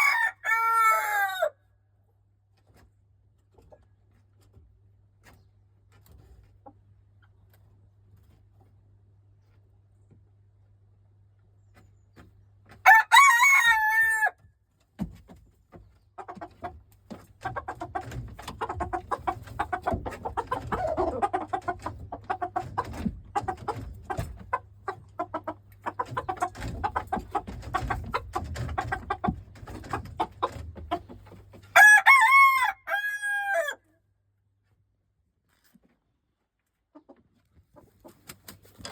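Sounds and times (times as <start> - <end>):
rooster crowing: 0.0 - 1.6, 12.9 - 14.4, 31.8 - 33.8
chicken clucking: 15.8 - 31.8, 36.6 - 38.9.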